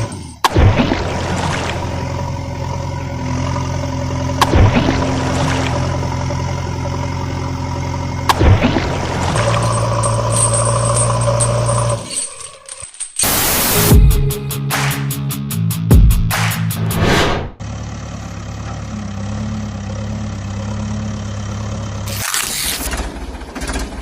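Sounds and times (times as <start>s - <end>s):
heavy vehicle engine running: 0.0s - 12.2s, 17.6s - 24.0s.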